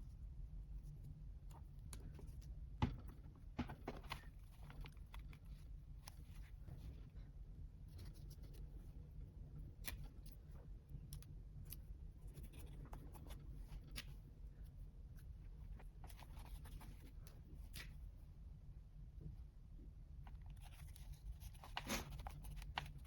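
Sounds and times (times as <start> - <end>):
steady low hum: 0.0 - 23.0
paper taps scratches and rustles: 1.8 - 6.5, 20.3 - 23.0.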